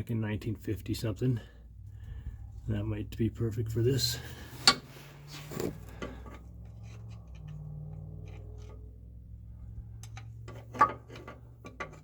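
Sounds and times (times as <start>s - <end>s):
steady low hum: 0.4s - 12.0s.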